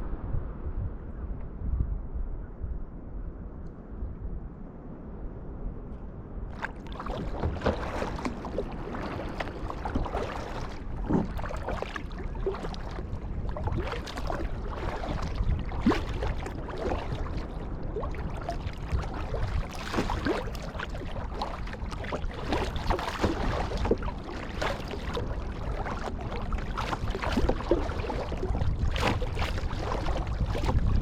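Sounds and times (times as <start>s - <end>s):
wind rumble on microphone: 0.0s - 31.0s
kayak paddle splashes: 6.5s - 31.0s
water lapping hull: 6.5s - 31.0s
water gurgling: 6.6s - 31.0s.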